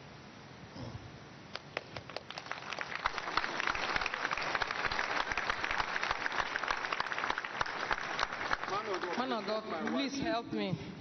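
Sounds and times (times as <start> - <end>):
crowd applauding: 1.8 - 10.3.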